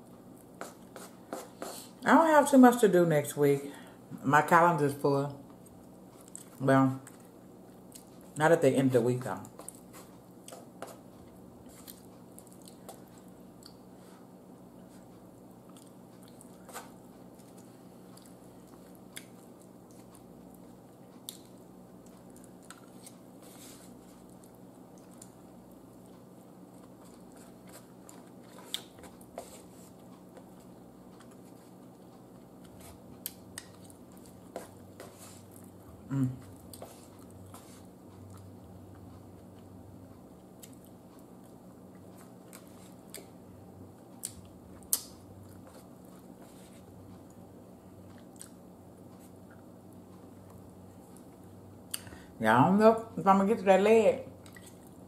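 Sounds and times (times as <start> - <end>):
steady low hum: 0.0 - 55.0
chewing and biting: 14.9 - 35.8, 48.0 - 48.6.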